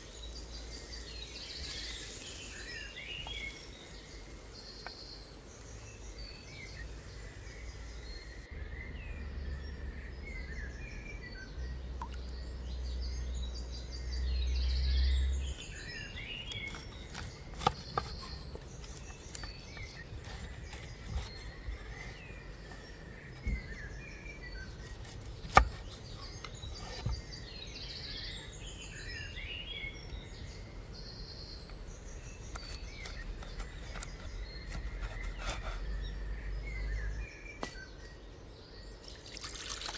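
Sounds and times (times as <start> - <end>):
wild birds chirping: 0.0 - 39.9.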